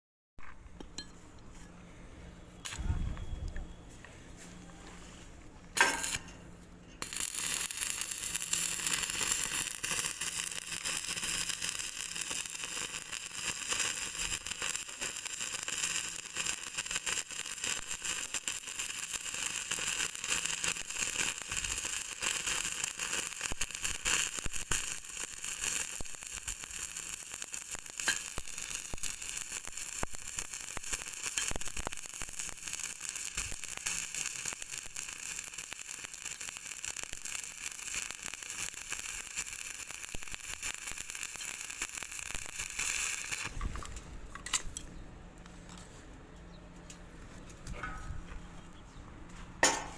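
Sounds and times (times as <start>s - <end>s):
welding arc hissing and crackling: 5.8s - 6.3s, 7.0s - 43.6s.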